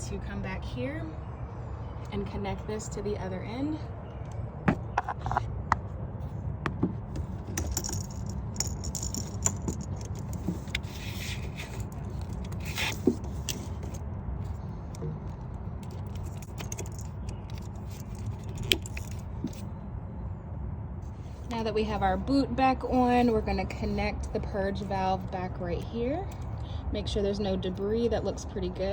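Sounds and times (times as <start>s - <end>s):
metallic and plastic rattling: 6.7s - 14.0s, 15.8s - 19.6s.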